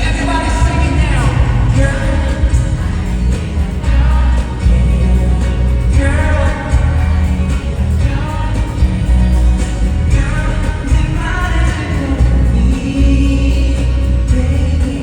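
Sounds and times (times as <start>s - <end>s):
heavy bass beat: 0.0s - 15.0s
live pop song through sound system: 0.0s - 15.0s
person singing: 0.0s - 15.0s.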